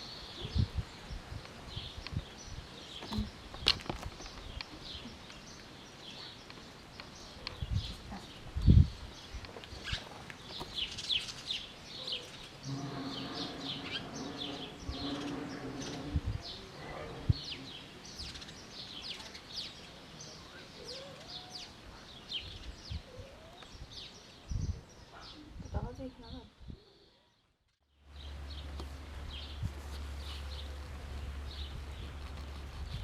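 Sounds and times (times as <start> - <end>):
small birds chirping: 0.0 - 27.5
steady low hum: 12.6 - 18.3.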